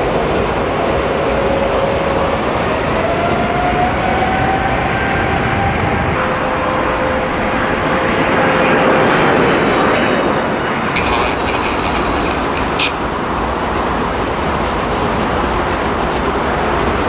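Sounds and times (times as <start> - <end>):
jet engine noise: 0.0 - 17.0
faint engine whine: 11.0 - 13.7.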